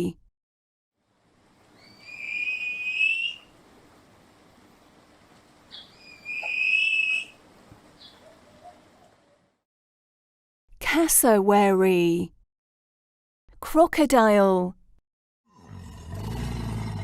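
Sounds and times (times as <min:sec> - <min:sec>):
cassowary whistle call: 0:01.8 - 0:03.5, 0:06.0 - 0:07.4.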